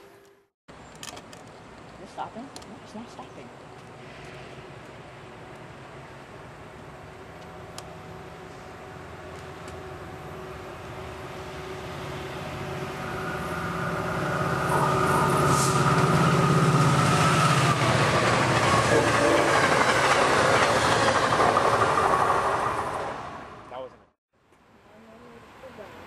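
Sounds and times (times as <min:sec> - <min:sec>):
diesel locomotive engine drone: 0:00.0 - 0:24.1
train wheel clatter: 0:16.9 - 0:23.2.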